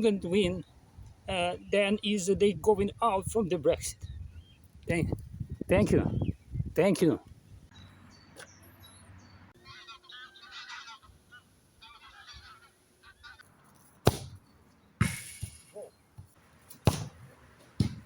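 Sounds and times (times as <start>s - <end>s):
wavering animal calls: 9.6s - 13.4s.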